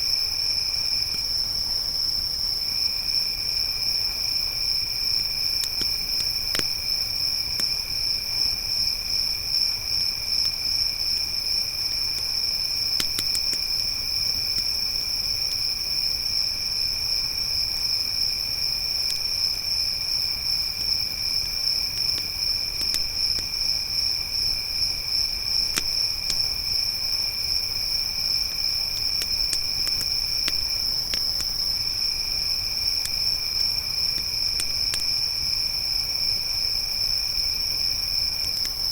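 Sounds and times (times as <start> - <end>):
crickets chirping: 0.0 - 38.9
campfire crackling pops: 5.4 - 7.8, 12.1 - 15.2, 20.8 - 26.8, 28.4 - 35.6, 38.4 - 38.9.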